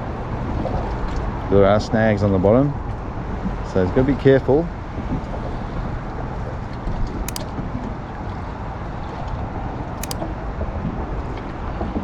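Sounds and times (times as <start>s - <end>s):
short sharp clicks: 7.3s - 7.5s, 10.0s - 10.2s
wind: 9.8s - 10.3s.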